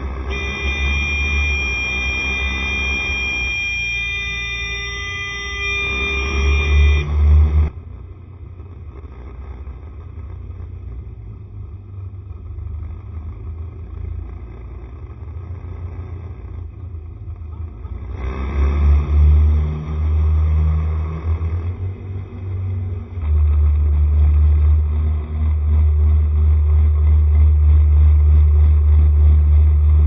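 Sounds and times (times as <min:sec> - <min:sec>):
scooter engine running: 0:00.0 - 0:07.2.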